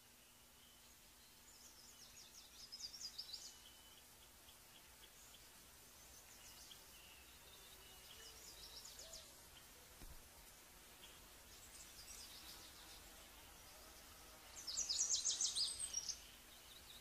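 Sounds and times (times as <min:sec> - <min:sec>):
background hiss: 0:00.0 - 0:17.0
high-pitched bird song: 0:14.5 - 0:17.0.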